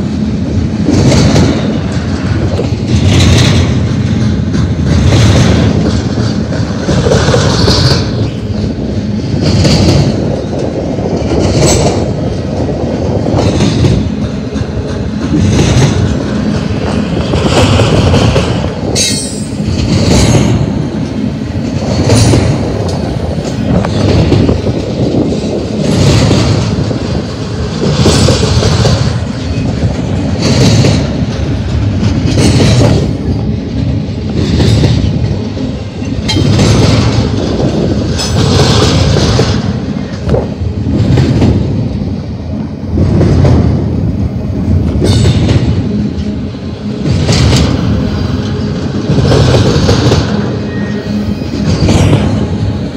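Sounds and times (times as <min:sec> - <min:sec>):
clickety-clack of train trucks: 0:00.0 - 0:52.9
train wheels rumbling on rail: 0:00.0 - 0:52.9
high-pitched wheel squeal: 0:50.6 - 0:51.5.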